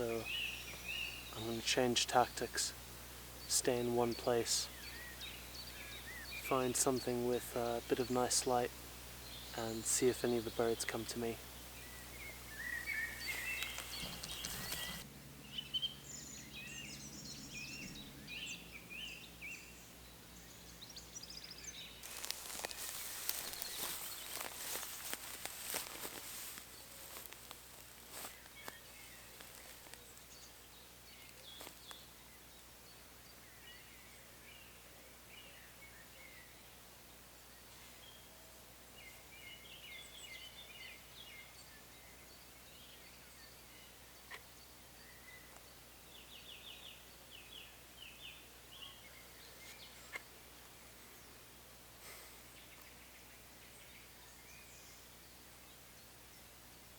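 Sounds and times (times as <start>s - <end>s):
faint bird chirps: 3.4s - 27.4s, 37.4s - 51.5s
rustling and clicks: 13.3s - 15.0s, 22.0s - 30.3s
sharp clicks: 13.6s - 15.0s.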